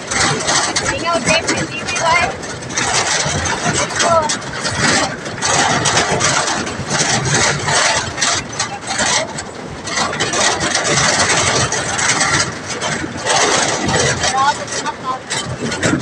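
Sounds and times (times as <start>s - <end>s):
vehicle engine running: 0.0s - 16.0s
wind rush over microphone: 0.0s - 16.0s.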